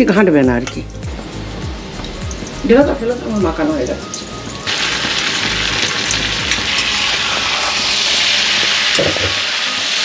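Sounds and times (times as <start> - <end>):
rice sizzling in hot oil: 1.3 - 10.0.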